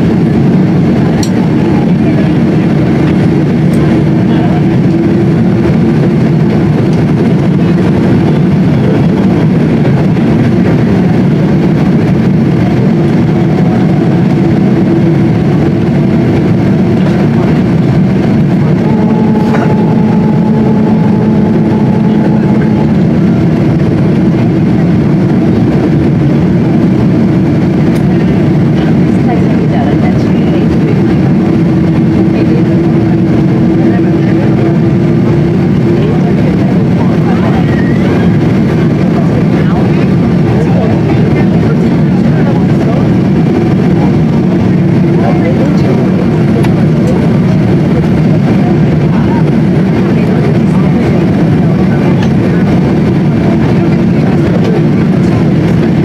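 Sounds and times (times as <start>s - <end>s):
airliner cabin engine rumble: 0.0s - 56.0s
faint steady tones: 17.9s - 24.4s.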